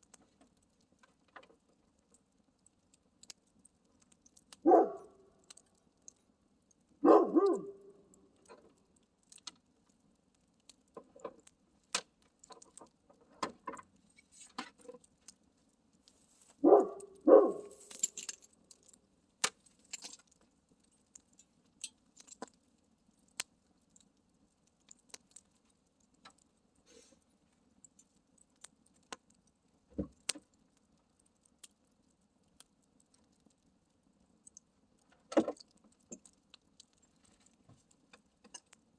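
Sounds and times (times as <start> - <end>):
campfire crackling and popping: 0.0 - 38.9
dog barking: 4.6 - 5.3, 7.0 - 8.0, 16.6 - 17.8.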